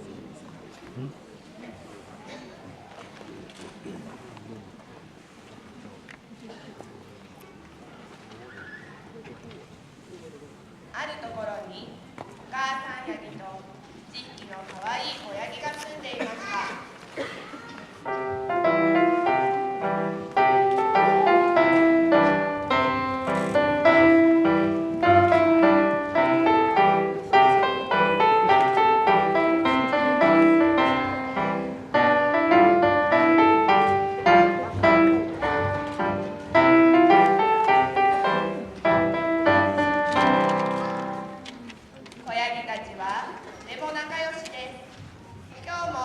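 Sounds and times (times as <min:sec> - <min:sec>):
piano playing a tune: 0:18.0 - 0:41.5.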